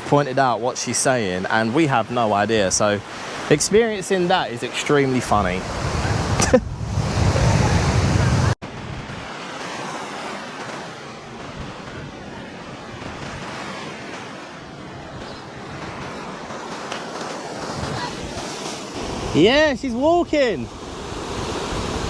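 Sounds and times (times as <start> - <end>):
surf washing onto beach: 0.0 - 22.0
wind on microphone: 5.2 - 9.4, 17.5 - 22.0.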